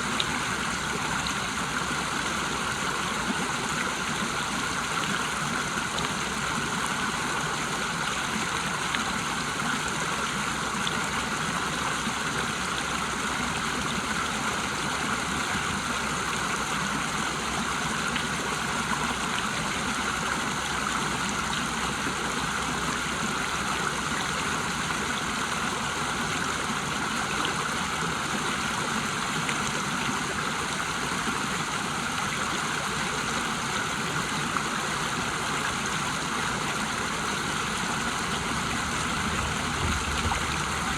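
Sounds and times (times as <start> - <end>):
waterfall rushing: 35.8 - 40.9.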